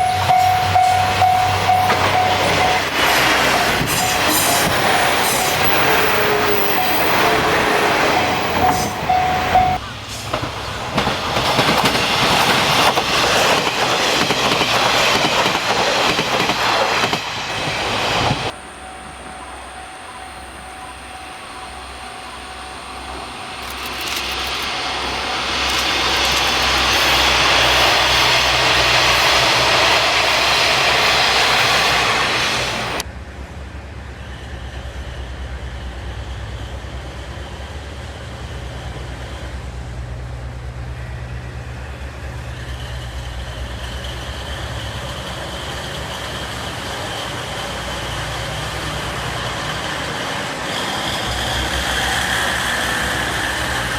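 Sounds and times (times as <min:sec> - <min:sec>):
diesel railcar running loudly: 0:00.0 - 0:53.9
faint high whine: 0:18.5 - 0:27.2.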